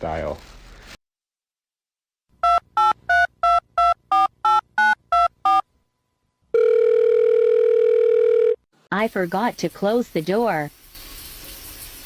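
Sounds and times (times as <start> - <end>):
telephone line tone: 6.5 - 8.6.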